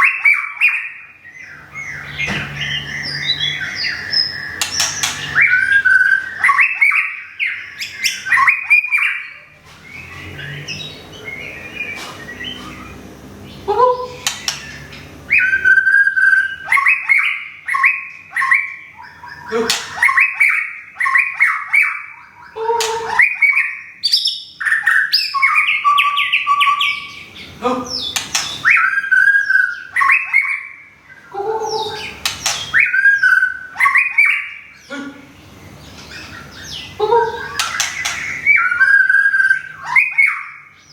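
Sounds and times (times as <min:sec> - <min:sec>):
bird singing varied whistles: 0:28.2 - 0:30.8, 0:32.3 - 0:34.7, 0:37.5 - 0:40.7.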